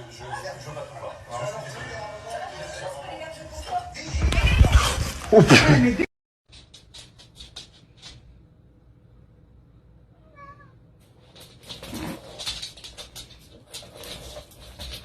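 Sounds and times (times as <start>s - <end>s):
cat meowing: 10.1s - 10.8s
rustling: 11.0s - 15.0s.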